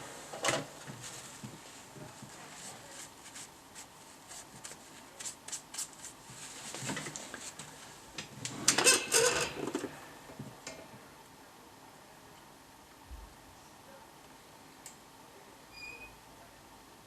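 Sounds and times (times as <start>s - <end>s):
objects clattering: 8.5s - 10.0s.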